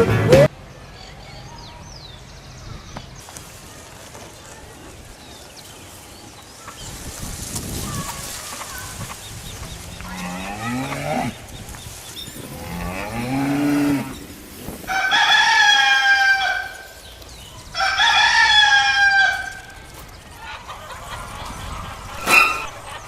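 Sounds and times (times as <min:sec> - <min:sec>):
cow mooing: 0:09.9 - 0:11.4, 0:12.5 - 0:14.2
rooster crowing: 0:14.8 - 0:17.0, 0:17.6 - 0:19.8.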